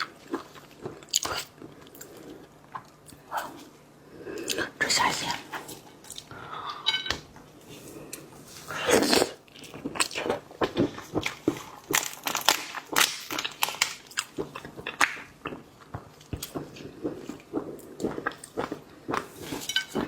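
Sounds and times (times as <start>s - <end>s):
wet chewing: 9.0s - 20.0s.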